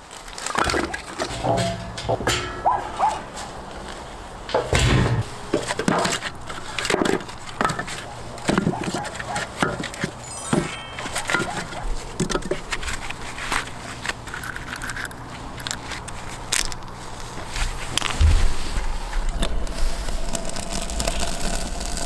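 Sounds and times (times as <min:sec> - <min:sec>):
firewood knocking and clattering: 0:00.7 - 0:03.6, 0:04.5 - 0:09.0.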